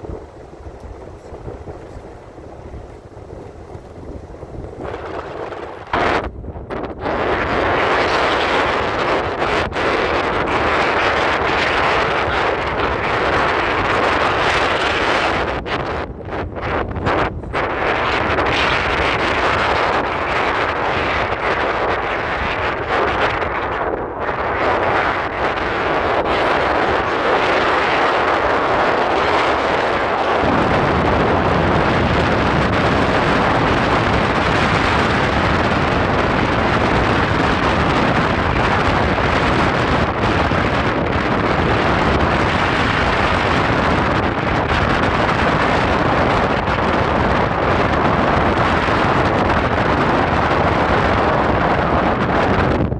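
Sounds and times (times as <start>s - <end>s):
tyres and engine noise: 0.0s - 21.4s, 24.1s - 51.8s
deep rumble: 0.0s - 52.9s
wind on microphone: 0.0s - 52.9s.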